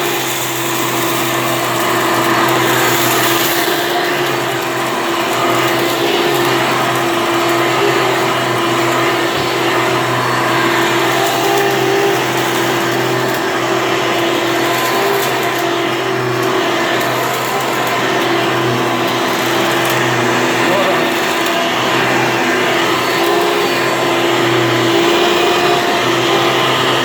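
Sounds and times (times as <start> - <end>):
vacuum cleaner running: 0.0 - 27.0.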